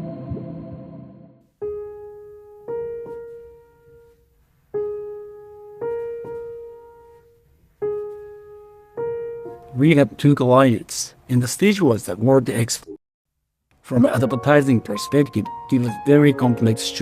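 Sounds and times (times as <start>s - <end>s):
slow solo piano notes: 1.6s - 9.8s.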